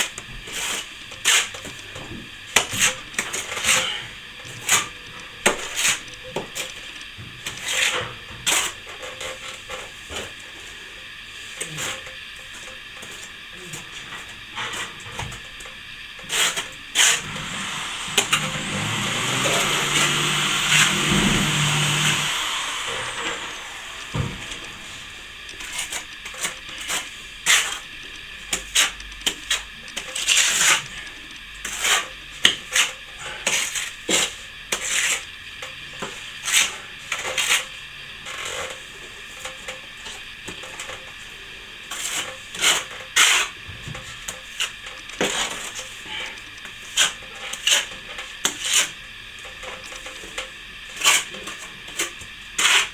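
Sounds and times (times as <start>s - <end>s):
trowel scraping and tapping wall: 0.3s - 6.8s, 16.2s - 27.9s, 28.5s - 35.3s, 41.9s - 50.4s, 51.0s - 52.9s.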